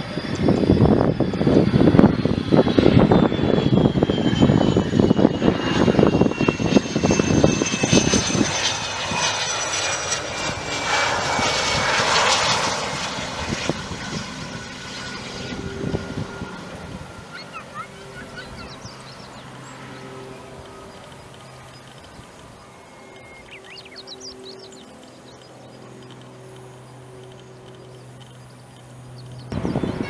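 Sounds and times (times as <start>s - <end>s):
jet engine roaring with whine: 0.0s - 30.0s
jet hiss: 8.0s - 30.0s.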